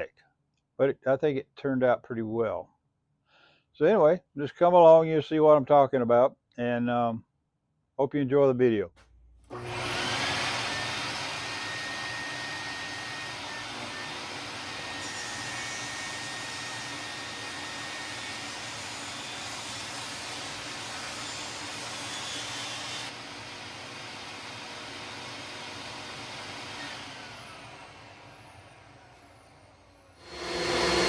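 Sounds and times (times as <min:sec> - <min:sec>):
power tool motor whining: 0:09.5 - 0:31.0.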